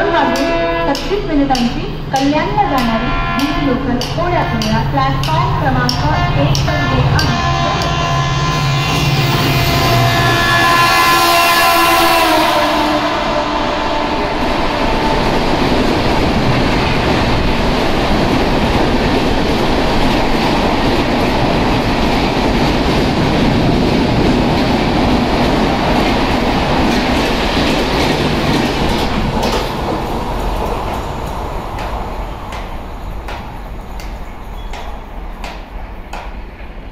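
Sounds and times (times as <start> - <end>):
train coaches rushing past: 0.0 - 36.9
wheels clattering over rail joints: 15.8 - 36.8.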